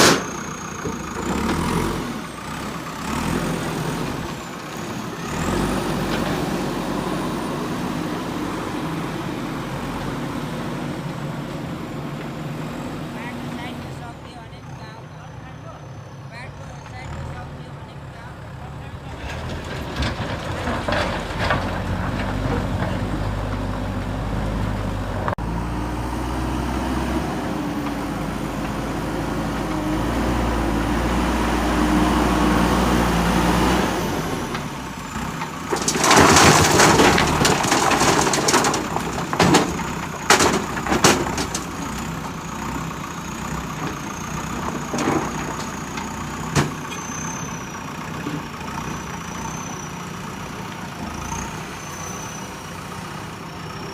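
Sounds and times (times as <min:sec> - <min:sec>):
diesel engine running under load: 0:00.0 - 0:53.9
scraping and clattering: 0:19.2 - 0:23.9, 0:34.6 - 0:42.4, 0:43.7 - 0:47.1.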